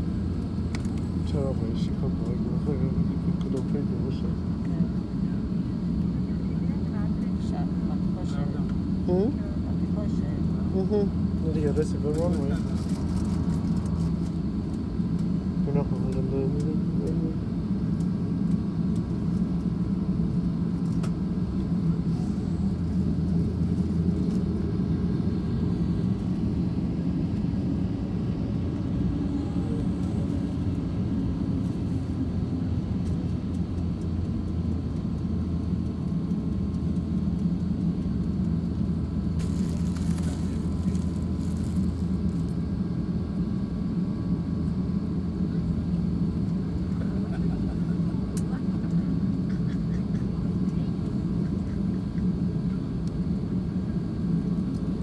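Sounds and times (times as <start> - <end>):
low engine rumble: 20.8 - 44.2.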